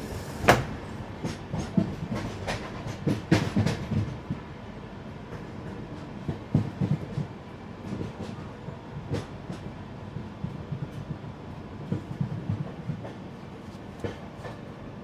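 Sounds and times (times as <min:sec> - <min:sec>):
wheels clacking over rail joints: 0:00.0 - 0:04.5
train running rumble: 0:00.0 - 0:15.0.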